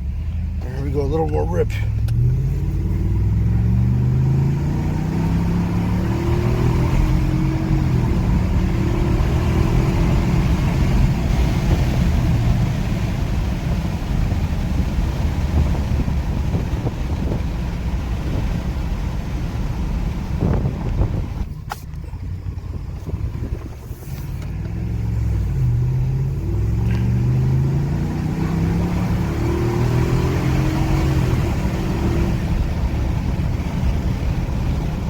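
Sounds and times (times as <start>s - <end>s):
road noise: 0.0s - 35.0s
truck engine accelerating hard: 0.0s - 35.0s.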